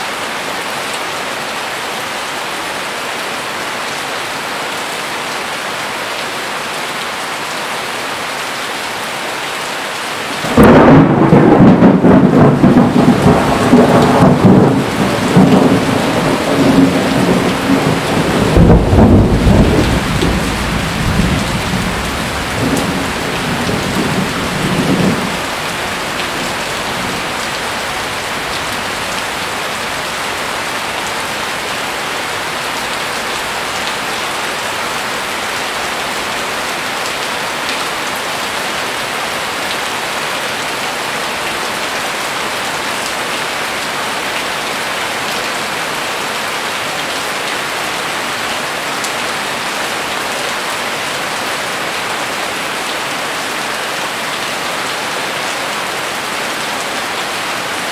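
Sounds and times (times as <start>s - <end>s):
heavy rain falling: 0.0s - 57.9s
thunder rumbling: 10.4s - 30.5s.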